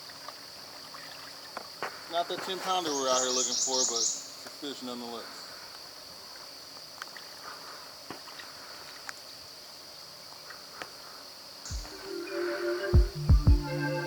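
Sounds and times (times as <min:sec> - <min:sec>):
high-pitched insect chorus: 0:00.0 - 0:14.0
music with low thumps: 0:11.7 - 0:12.1, 0:12.9 - 0:14.0.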